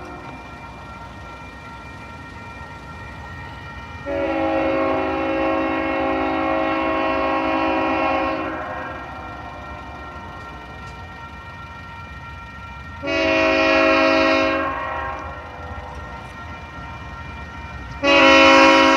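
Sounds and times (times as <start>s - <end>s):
passing train rumble: 0.0s - 18.9s
locomotive air horn chord: 3.8s - 18.9s.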